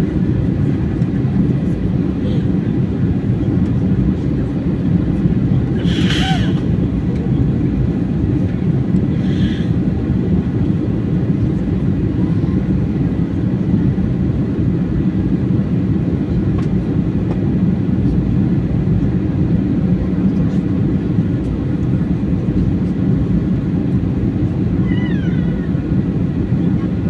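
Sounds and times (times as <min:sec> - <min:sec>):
airliner engines rumbling: 0:00.0 - 0:27.0.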